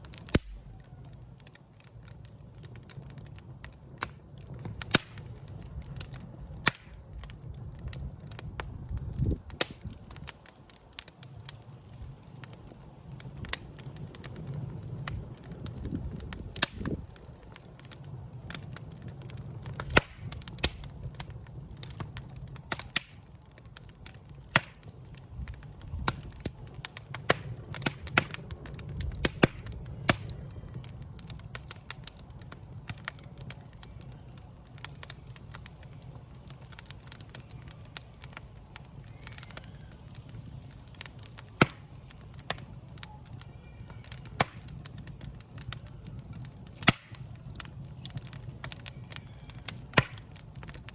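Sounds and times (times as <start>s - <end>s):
fire crackling and popping: 0.0s - 50.9s
low rumble of flames: 0.0s - 50.9s.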